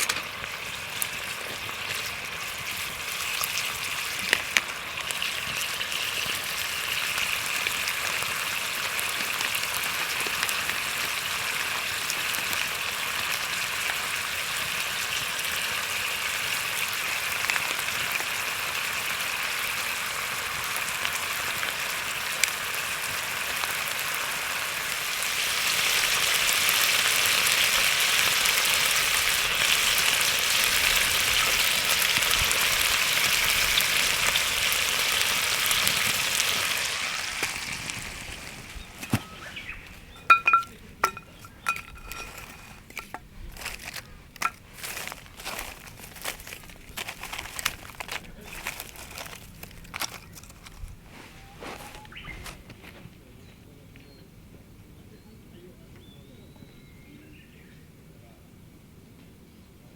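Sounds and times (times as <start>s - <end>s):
food sizzling in a skillet: 0.0s - 47.4s.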